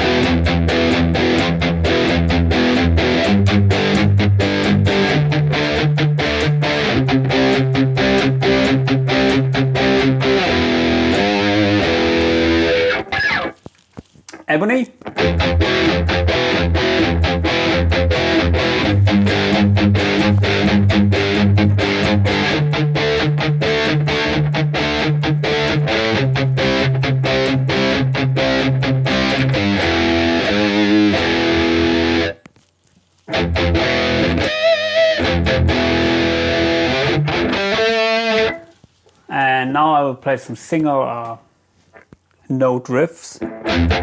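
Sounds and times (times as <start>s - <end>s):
distorted electric guitar: 0.0s - 13.6s, 14.3s - 32.5s, 33.3s - 38.8s, 43.4s - 44.0s.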